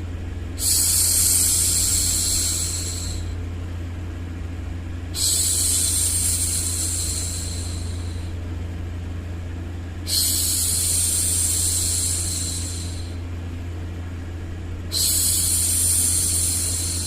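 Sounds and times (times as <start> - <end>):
low rumbling noise: 0.0 - 17.0
woman shushing: 0.6 - 3.3, 5.2 - 8.3, 14.9 - 17.0.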